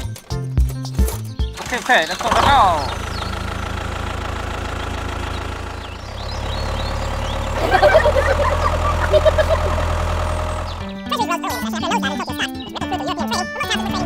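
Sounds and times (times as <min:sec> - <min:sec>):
small tractor motor running: 0:01.6 - 0:11.2.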